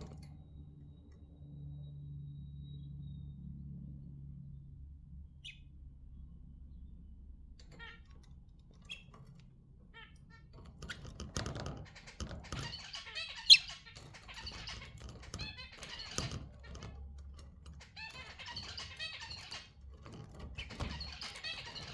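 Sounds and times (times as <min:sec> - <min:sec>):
budgerigars chirping: 0:11.8 - 0:17.0, 0:17.8 - 0:19.8, 0:20.6 - 0:21.9
bird squawk: 0:11.9 - 0:17.0.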